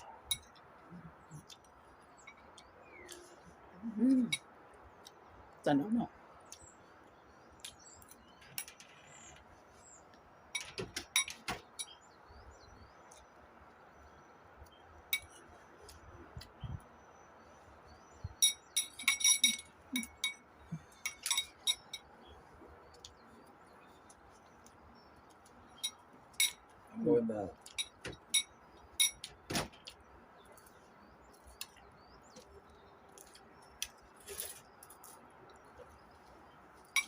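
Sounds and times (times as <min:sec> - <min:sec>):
cutlery and glass clinking: 0:10.6 - 0:12.0, 0:18.4 - 0:22.1, 0:25.8 - 0:26.6, 0:27.7 - 0:29.4.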